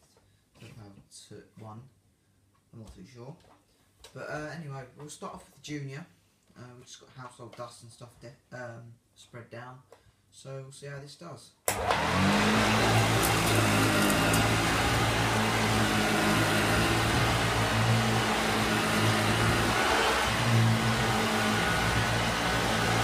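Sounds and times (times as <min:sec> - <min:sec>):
vacuum cleaner running: 0:11.7 - 0:23.0.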